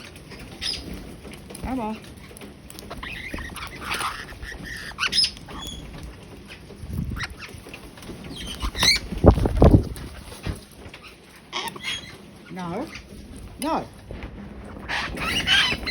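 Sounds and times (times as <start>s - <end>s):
birds chirping: 0.0s - 15.9s
low thumping rumble: 13.1s - 15.9s.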